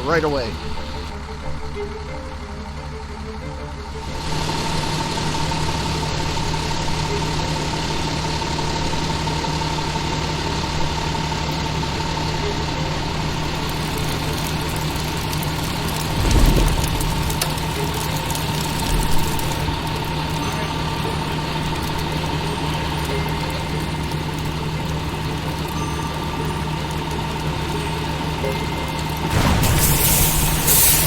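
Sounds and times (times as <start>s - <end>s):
fire truck engine running: 0.0s - 31.0s
low thump: 16.2s - 19.8s.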